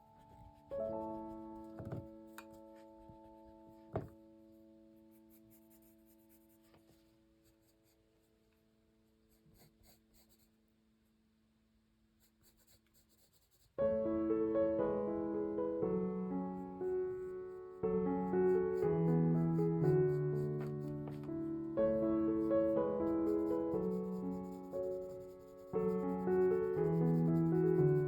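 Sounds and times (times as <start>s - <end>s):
piano chord: 0.0s - 5.6s, 13.8s - 28.0s
gentle piano music: 0.0s - 8.0s, 13.8s - 28.0s
pencil scratching on paper: 0.2s - 4.1s, 5.1s - 8.3s, 9.2s - 10.6s, 12.2s - 13.8s, 16.8s - 21.3s, 22.4s - 28.0s.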